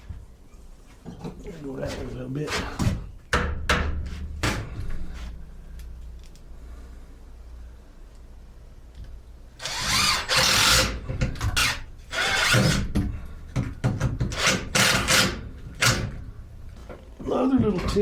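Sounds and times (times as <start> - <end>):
screw gun motor bursts: 9.6 - 11.0, 11.6 - 12.8, 14.4 - 15.4.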